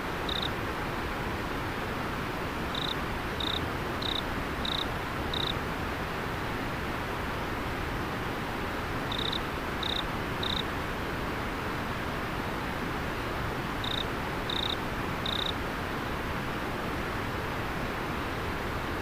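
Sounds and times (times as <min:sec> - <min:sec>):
river water flowing: 0:00.0 - 0:19.0
cricket chirping: 0:00.2 - 0:00.5, 0:02.7 - 0:05.6, 0:09.1 - 0:10.6, 0:13.8 - 0:15.6.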